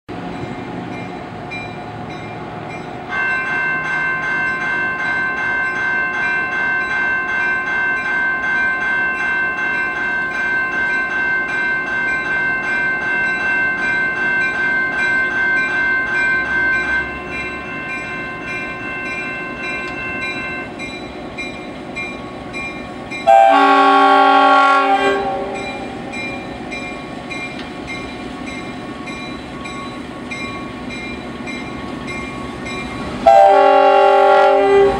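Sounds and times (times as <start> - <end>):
diesel locomotive running: 0.1 - 34.9
train bell ringing: 0.2 - 34.9
train air horn blast: 23.3 - 25.9, 33.2 - 34.9.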